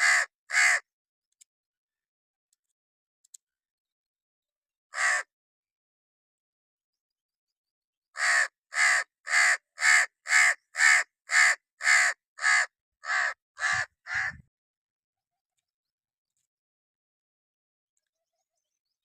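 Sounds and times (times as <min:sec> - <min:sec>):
crow cawing: 0:00.0 - 0:00.9, 0:04.9 - 0:05.3, 0:08.2 - 0:14.4.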